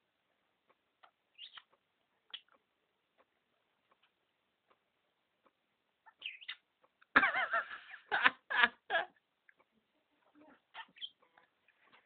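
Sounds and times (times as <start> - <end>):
parrot squawking: 6.0 - 6.6, 10.7 - 11.2.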